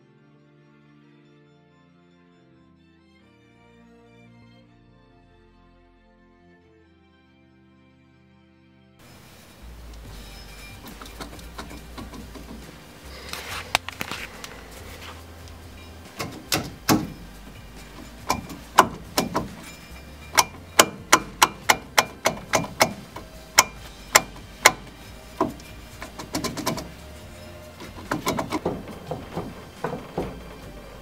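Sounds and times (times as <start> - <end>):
faint background music: 0.0 - 31.0
metallic knocks and clanks: 9.9 - 31.0.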